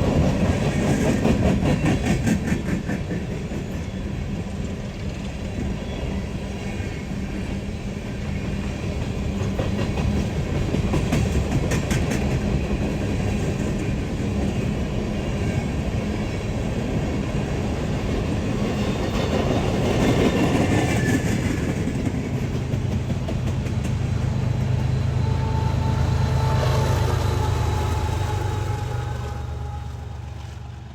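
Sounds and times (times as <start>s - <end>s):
train wheels clicking on rail joints: 0.0s - 30.9s
diesel locomotive engine running: 15.6s - 30.9s.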